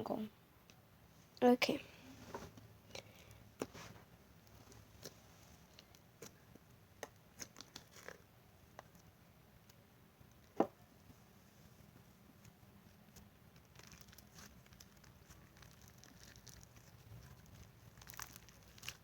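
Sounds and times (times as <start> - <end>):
slime squishing and crackling: 4.5 - 9.1, 13.1 - 19.0.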